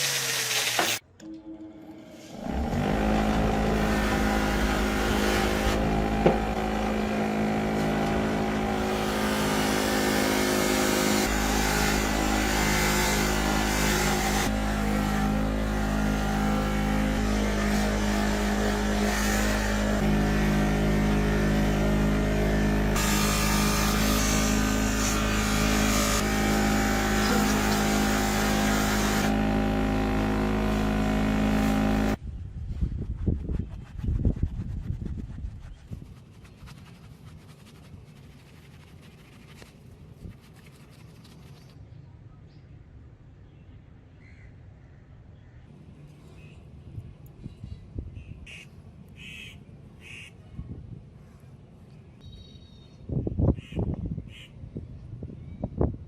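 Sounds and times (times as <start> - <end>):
electric motor running: 2.3 - 32.2
uneven rubbing sound: 32.7 - 41.9.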